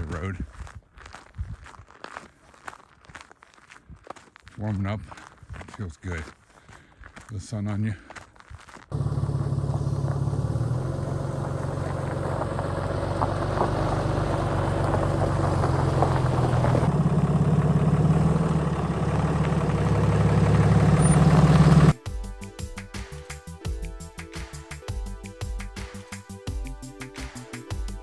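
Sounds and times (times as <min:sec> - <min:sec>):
truck engine running: 0:08.9 - 0:22.3.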